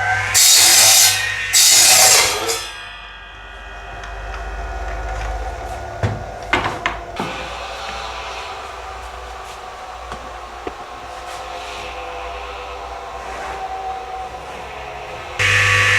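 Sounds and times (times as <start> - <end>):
ringing machine tone: 2.5 - 7.2, 14.9 - 15.9
loud hissing bursts: 7.1 - 15.9.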